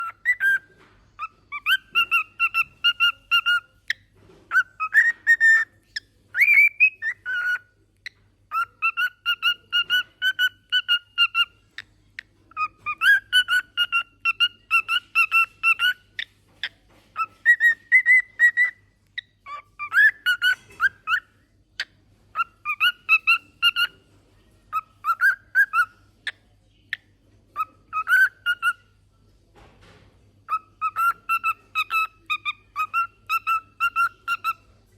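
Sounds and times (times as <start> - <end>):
cockatiel whistling: 0.0 - 0.6, 1.2 - 3.8, 4.5 - 5.7, 6.3 - 7.6, 8.5 - 11.5, 12.6 - 16.3, 17.2 - 21.2, 22.4 - 23.9, 24.7 - 25.9, 27.6 - 28.8, 30.5 - 34.6.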